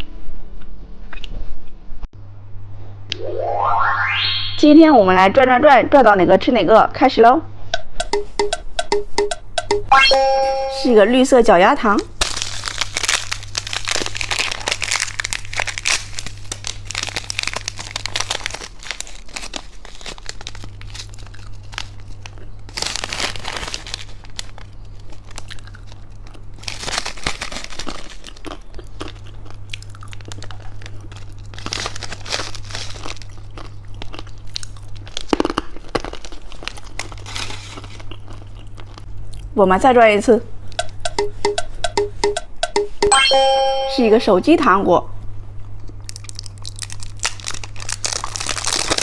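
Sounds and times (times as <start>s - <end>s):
plastic wrapper crinkling: 12.1s - 29.2s, 29.8s - 33.5s, 35.0s - 38.2s, 46.0s - 49.0s.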